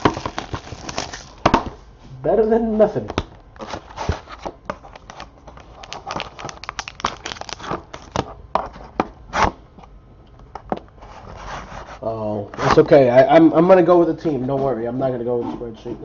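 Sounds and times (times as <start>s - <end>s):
wrapper crinkling and rustling: 0.0s - 1.4s, 3.6s - 8.3s.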